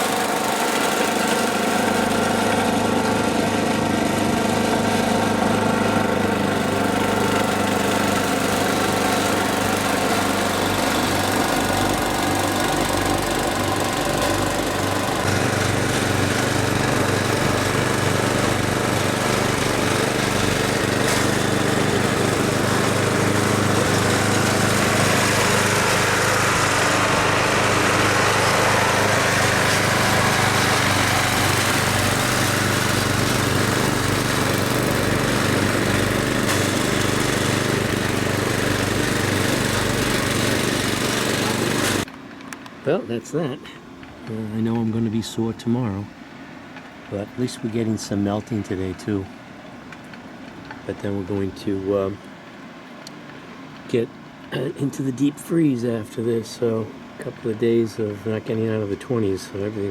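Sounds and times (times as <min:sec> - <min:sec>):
snowblower engine running: 0:00.0 - 0:42.2.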